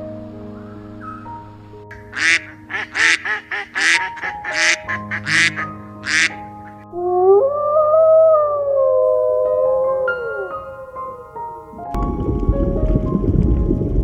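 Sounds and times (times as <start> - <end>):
soft background music: 0.0 - 14.0
animal harsh calls: 2.0 - 11.8
wavering gliding tone: 6.6 - 12.0.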